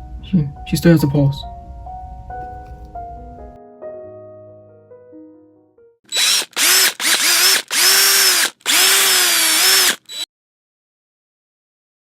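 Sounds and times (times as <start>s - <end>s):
power drill motor bursts: 6.1s - 10.3s.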